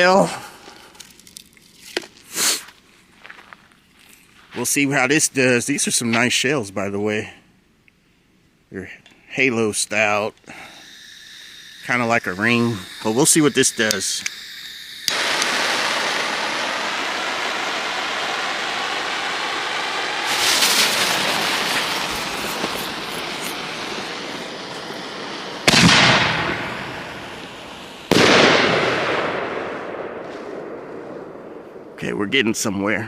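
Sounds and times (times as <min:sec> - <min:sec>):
firework crackling: 0:00.0 - 0:02.8, 0:09.5 - 0:32.0
firework hissing: 0:00.2 - 0:02.7, 0:09.6 - 0:31.4
firework booms echoing: 0:15.1 - 0:32.0.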